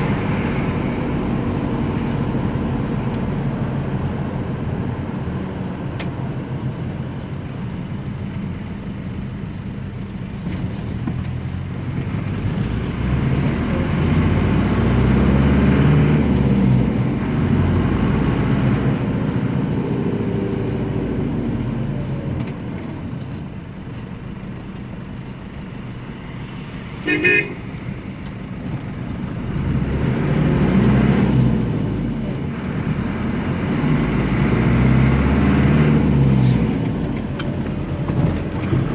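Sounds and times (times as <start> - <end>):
diesel engine running: 0.0 - 38.9
horn toot: 27.0 - 27.7.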